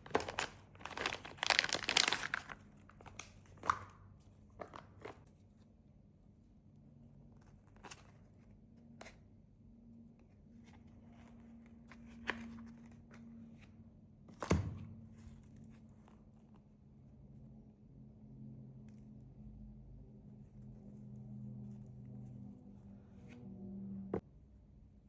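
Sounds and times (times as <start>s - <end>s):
candy wrappers crinkling: 0.0s - 3.9s
faint low hum: 5.2s - 25.0s.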